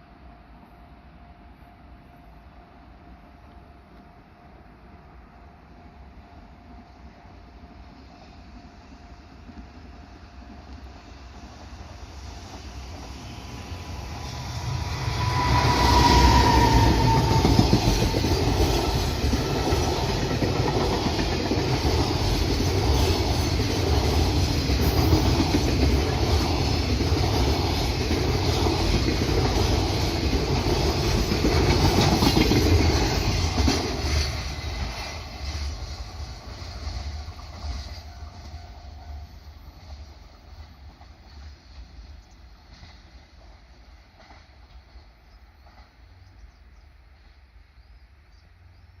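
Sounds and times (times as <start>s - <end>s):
freight train wheels clattering: 11.6s - 46.4s
falling whine: 12.0s - 20.2s.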